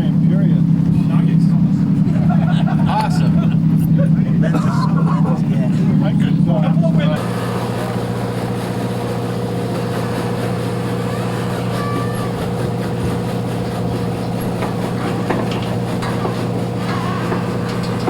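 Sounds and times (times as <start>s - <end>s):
boat engines droning: 0.0s - 18.0s.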